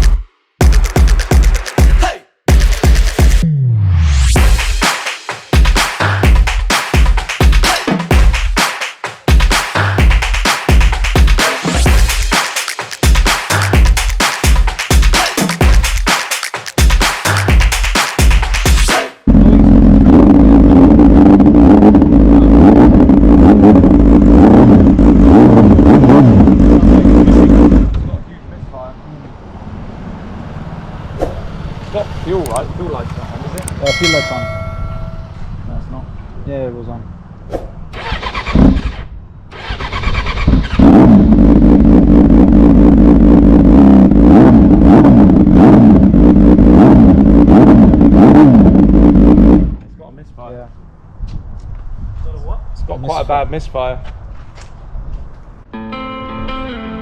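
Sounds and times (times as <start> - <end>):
vehicle engine and road noise: 19.3 - 55.7
electric starter cranking: 37.9 - 40.9.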